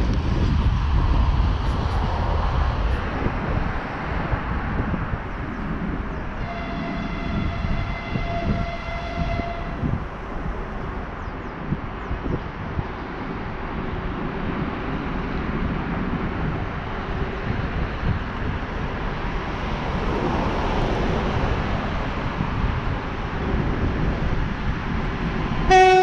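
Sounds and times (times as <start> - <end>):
freight wagons rumbling on rails: 0.0 - 26.0
distant locomotive horn: 6.4 - 10.5, 25.6 - 26.0.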